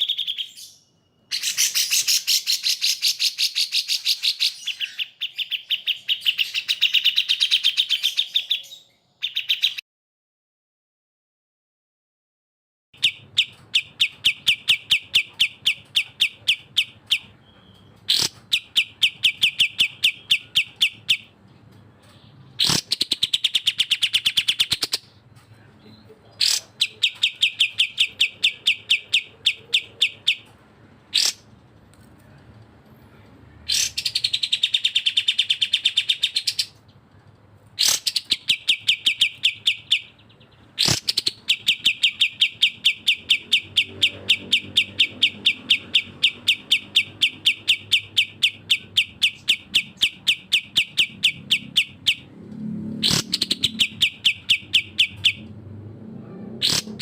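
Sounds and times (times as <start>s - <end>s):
birdsong phrase rising and falling: 37.8s - 57.0s.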